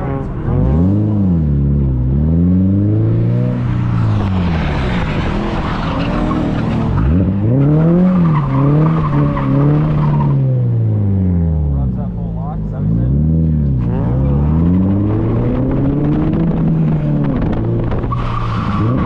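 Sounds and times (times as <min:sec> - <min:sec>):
car engine revving: 0:00.0 - 0:19.0
tyres squealing and skidding: 0:03.6 - 0:10.6, 0:18.0 - 0:19.0.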